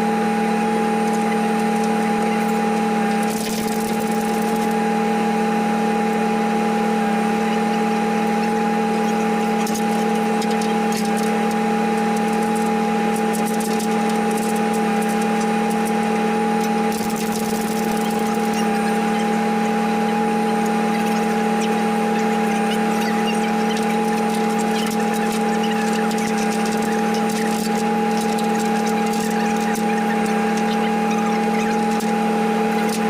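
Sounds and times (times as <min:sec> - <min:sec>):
truck engine running: 0:00.0 - 0:33.0.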